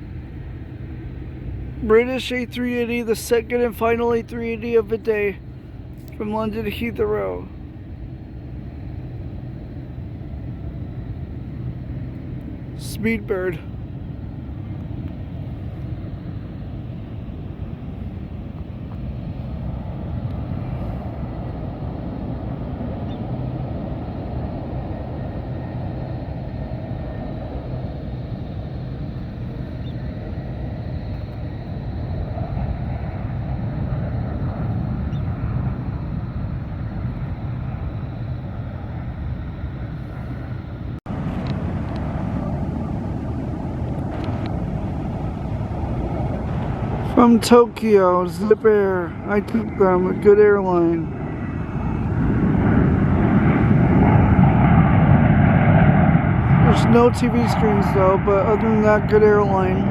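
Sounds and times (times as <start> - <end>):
jet engines rumbling: 0.0 - 59.9.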